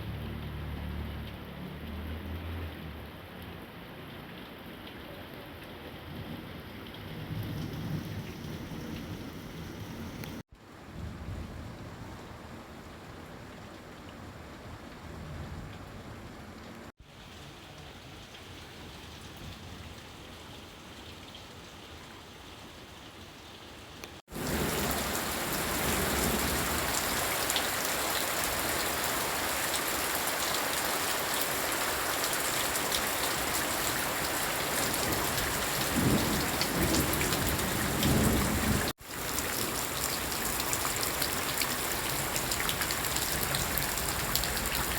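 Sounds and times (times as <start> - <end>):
heavy rain falling: 0.0 - 10.4, 24.2 - 44.9.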